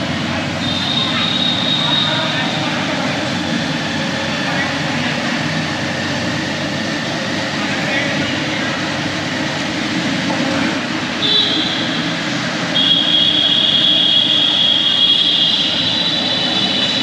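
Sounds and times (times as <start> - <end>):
motorcycle road and engine noise: 0.0 - 17.0
high-pitched steady tone: 11.2 - 17.0.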